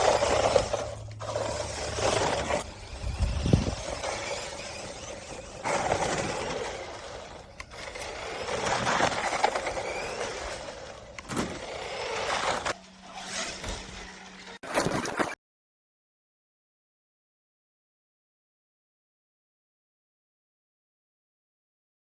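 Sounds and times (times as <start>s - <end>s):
electric rc truck driving: 0.0s - 15.4s
scraping on rough ground: 0.0s - 15.4s.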